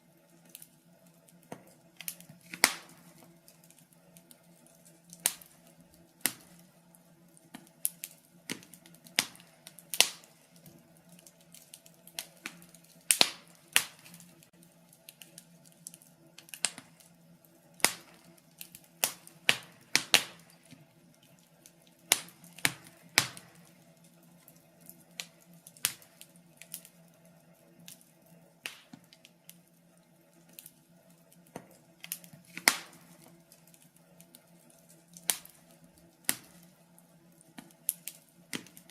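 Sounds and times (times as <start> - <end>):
faint steady hum: 0.0 - 38.9
wood fire pops and snaps: 0.2 - 38.9.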